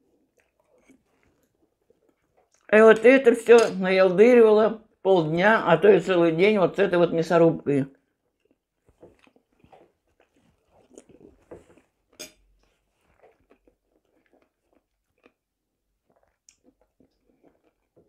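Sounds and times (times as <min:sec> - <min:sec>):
person chewing with wet clicks: 0:00.0 - 0:03.3, 0:08.0 - 0:18.0.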